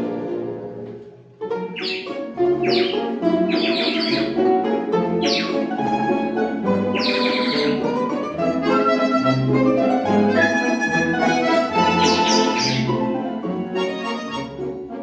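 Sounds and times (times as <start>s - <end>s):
accordion orchestra playing a waltz: 1.5s - 15.0s
falling chirp-like flourish: 1.8s - 4.5s, 6.8s - 8.0s.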